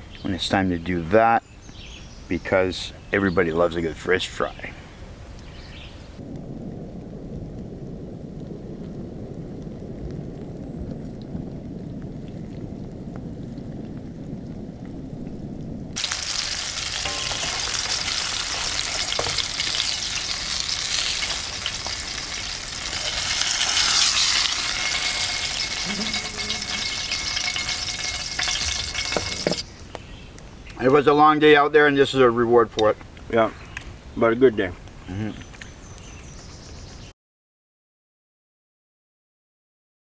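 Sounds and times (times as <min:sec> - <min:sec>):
low rumbling noise: 0:06.2 - 0:29.7
fish sizzling in a frying pan: 0:16.0 - 0:29.6.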